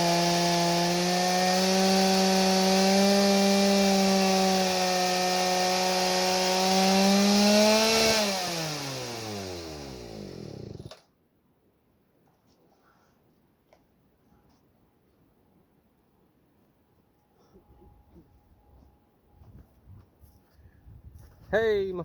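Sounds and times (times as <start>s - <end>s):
chainsaw cutting wood: 0.0s - 11.0s
chainsaw engine running: 0.0s - 11.0s.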